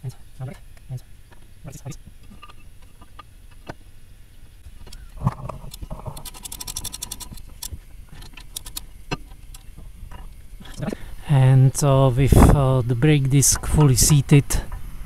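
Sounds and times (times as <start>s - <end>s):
metal clicks and scrapes: 4.8s - 11.0s
rapid clicking: 4.9s - 11.0s.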